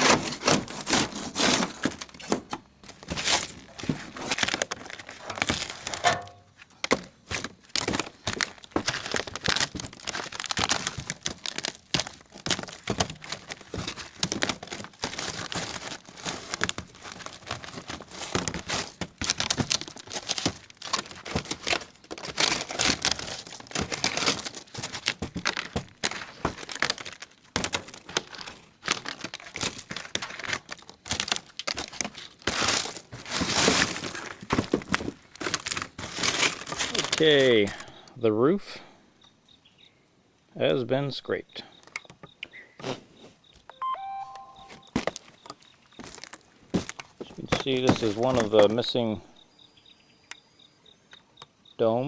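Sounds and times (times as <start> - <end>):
scraping tar coating off a roof: 0.0 - 2.4.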